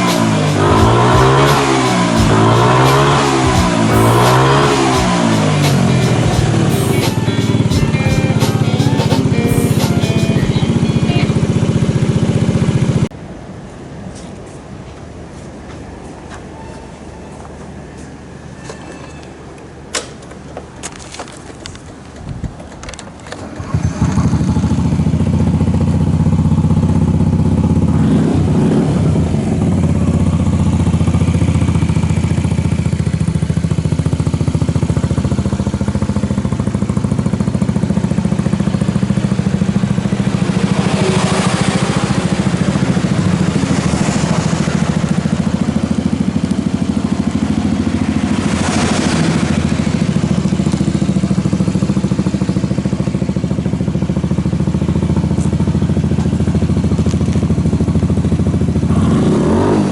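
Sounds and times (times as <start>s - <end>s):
scooter engine running: 0.0s - 13.1s, 20.4s - 59.9s.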